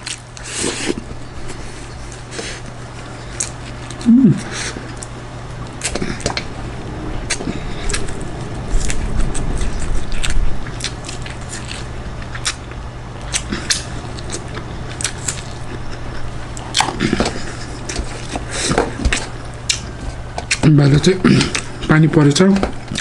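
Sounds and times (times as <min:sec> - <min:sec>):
steady low hum: 0:00.0 - 0:23.0
wet chewing and mouth smacks: 0:08.8 - 0:20.6.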